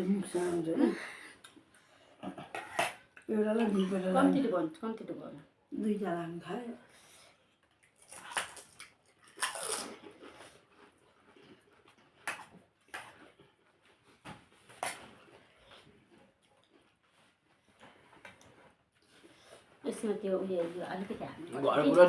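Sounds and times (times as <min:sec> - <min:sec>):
quiet chewing: 0:00.4 - 0:03.9, 0:06.9 - 0:19.9.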